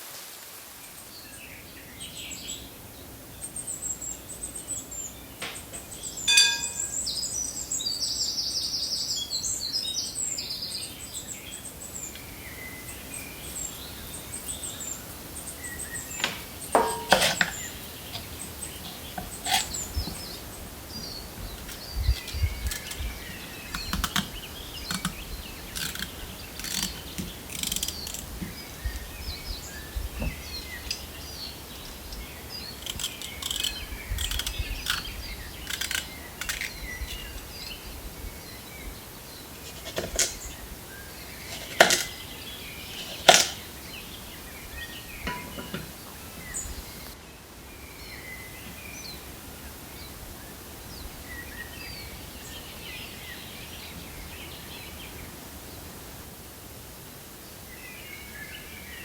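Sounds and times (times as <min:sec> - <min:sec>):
outdoor background noise: 0:00.0 - 0:59.0
birds chirping and calling: 0:13.1 - 0:38.6.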